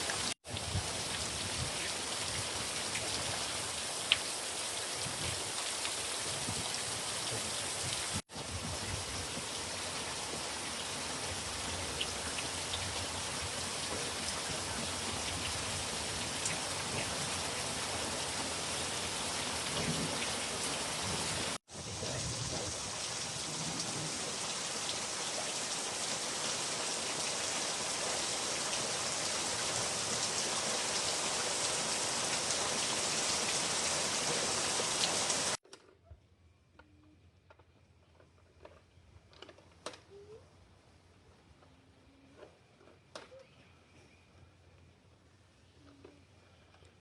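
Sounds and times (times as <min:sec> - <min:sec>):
heavy rain falling: 0:00.0 - 0:35.6.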